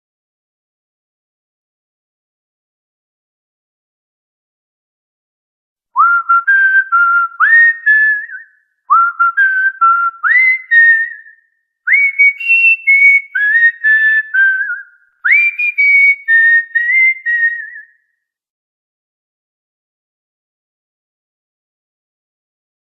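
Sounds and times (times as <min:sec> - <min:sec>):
cockatiel whistling a tune: 0:06.0 - 0:18.0.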